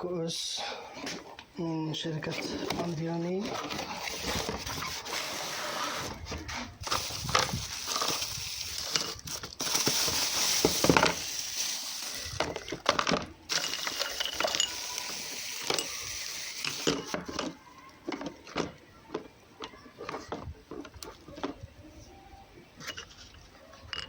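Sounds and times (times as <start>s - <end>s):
steady hiss: 6.8s - 12.6s
drinking glasses clinking: 13.5s - 16.0s.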